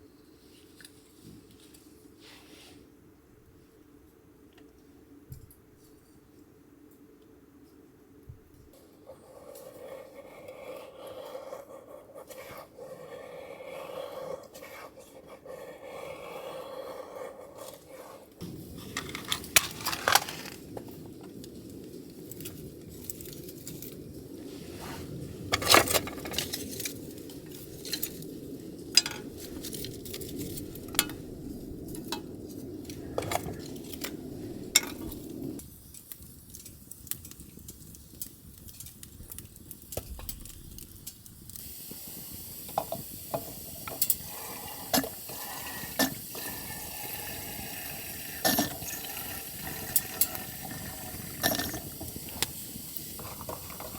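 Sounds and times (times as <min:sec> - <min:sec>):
steady hiss: 0:17.6 - 0:53.9
low steady rumble: 0:24.0 - 0:35.6.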